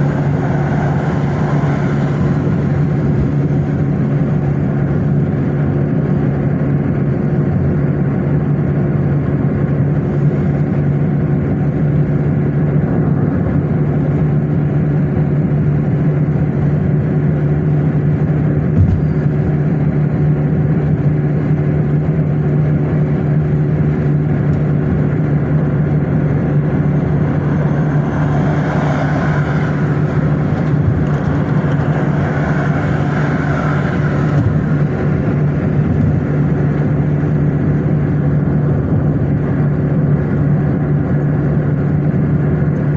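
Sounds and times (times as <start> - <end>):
higher rushing noise: 0.0 - 4.4, 24.3 - 38.4
car engine and road noise: 0.0 - 42.9.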